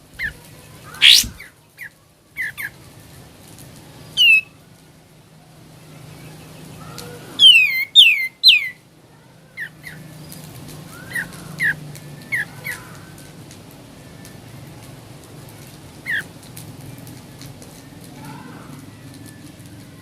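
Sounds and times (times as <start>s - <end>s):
bird whistling calls: 0.9s - 1.5s, 4.2s - 4.5s, 7.4s - 8.8s.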